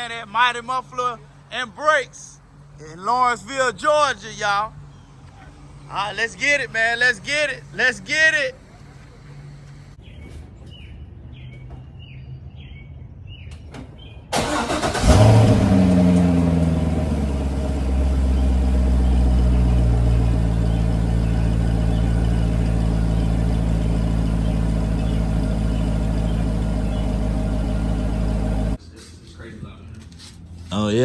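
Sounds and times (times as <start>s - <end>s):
starter motor cranking: 14.4s - 16.6s
loud car engine idling: 14.4s - 28.8s.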